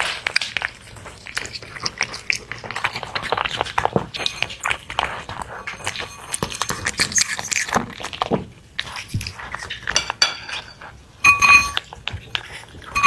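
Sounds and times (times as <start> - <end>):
utensils scraping against dishes: 4.2 - 7.7, 9.9 - 11.8
loud ringing clink: 10.2 - 11.8.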